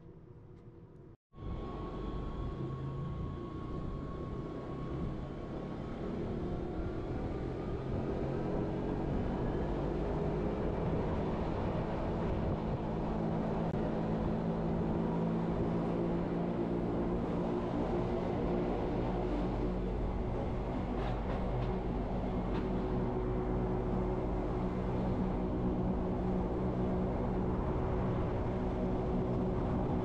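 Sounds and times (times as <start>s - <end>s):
electric train rumbling: 15.6s - 30.0s.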